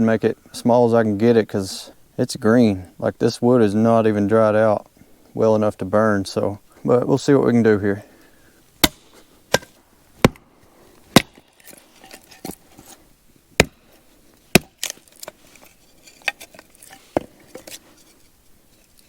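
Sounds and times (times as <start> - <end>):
firewood chopping strikes: 8.8 - 10.5, 11.1 - 12.6, 13.6 - 13.9, 14.5 - 15.4.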